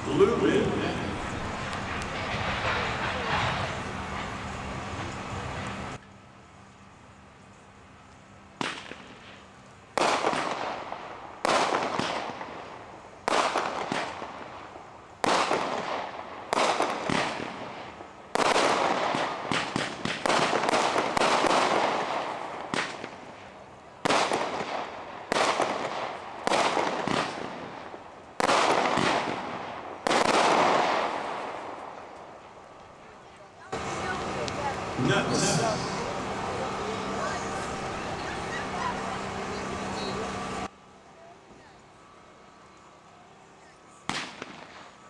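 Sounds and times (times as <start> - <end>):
crackling sparkle of firework stars: 0.0 - 45.0
firework cake shots popping: 8.6 - 9.4, 10.0 - 23.3, 24.0 - 32.9, 44.0 - 45.0.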